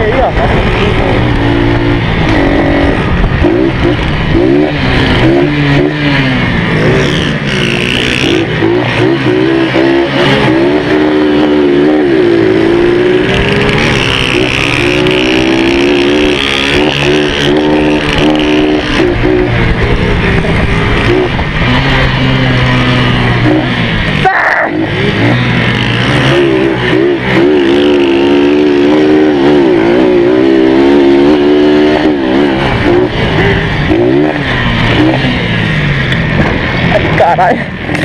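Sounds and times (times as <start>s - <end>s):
wind rushing over microphone: 0.0s - 7.5s, 9.5s - 24.2s
motorcycle engine revving: 0.0s - 38.0s.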